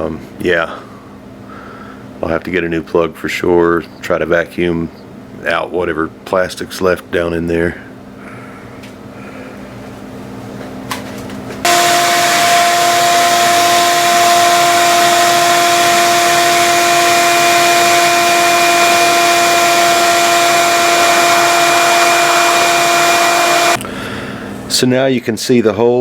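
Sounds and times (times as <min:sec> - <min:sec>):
vacuum cleaner whining: 0:11.6 - 0:23.8.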